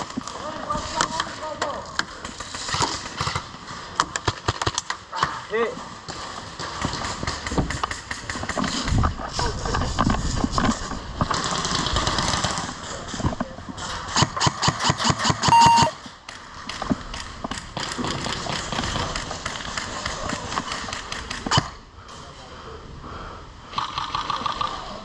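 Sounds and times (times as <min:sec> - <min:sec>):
short electronic beep: 0:15.5 - 0:16.0.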